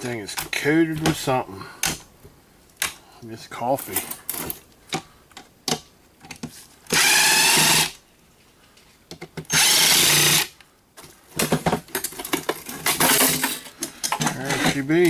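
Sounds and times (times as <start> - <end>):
power drill running: 6.9 - 8.0, 9.5 - 10.5.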